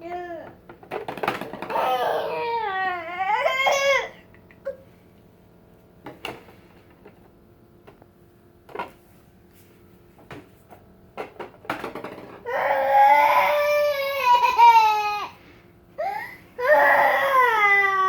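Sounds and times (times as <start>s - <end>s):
baby crying loudly: 1.7s - 4.2s, 12.5s - 15.4s, 16.0s - 18.0s.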